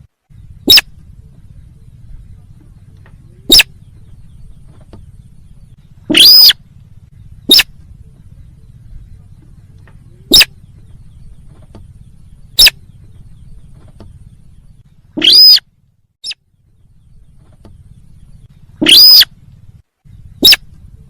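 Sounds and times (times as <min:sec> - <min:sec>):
steady low hum: 0:00.0 - 0:21.0
bird lure call notes: 0:00.6 - 0:01.0, 0:06.1 - 0:06.6, 0:07.4 - 0:07.8, 0:10.3 - 0:10.6, 0:12.5 - 0:12.9, 0:15.2 - 0:15.6, 0:18.8 - 0:19.3, 0:20.4 - 0:20.8.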